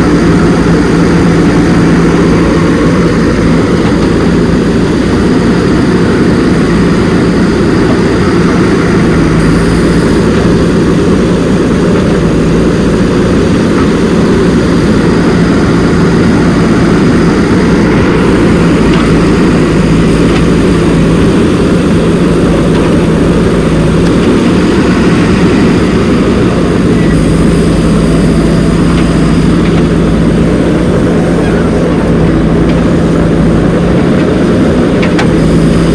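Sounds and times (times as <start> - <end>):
loud mechanical hum: 0.0 - 35.9.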